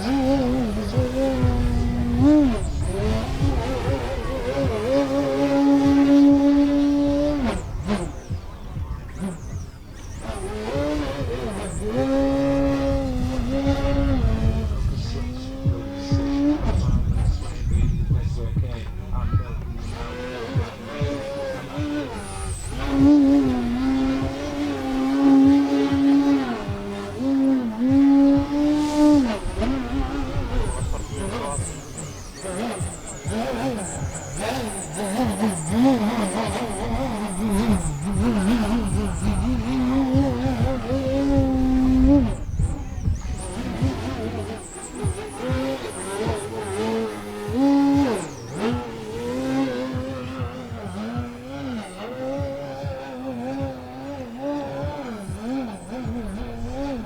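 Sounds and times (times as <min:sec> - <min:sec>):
model plane motor buzzing: 0:00.0 - 0:57.0.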